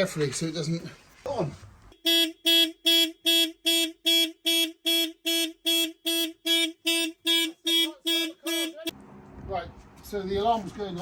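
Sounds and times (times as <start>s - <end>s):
car alarm horn beeps: 1.9s - 8.9s.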